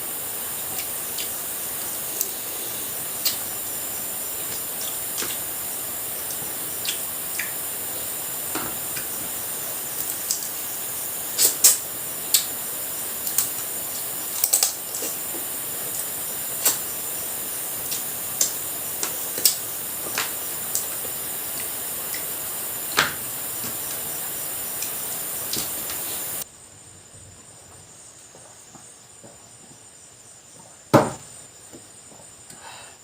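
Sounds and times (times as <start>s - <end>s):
background hiss: 0.0s - 33.0s.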